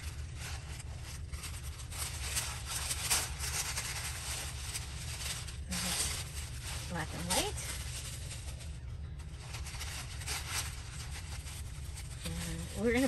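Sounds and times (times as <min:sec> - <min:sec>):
paper rustling and crinkling: 0:00.0 - 0:13.0
steady low hum: 0:00.0 - 0:13.0.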